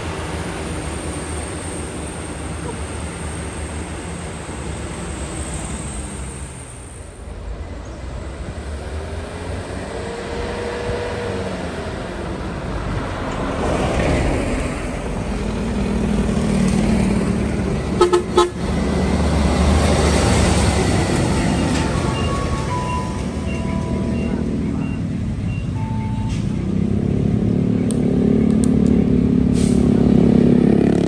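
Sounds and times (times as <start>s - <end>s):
diesel truck engine under load: 13.4s - 28.6s
truck horn toots: 18.0s - 18.6s.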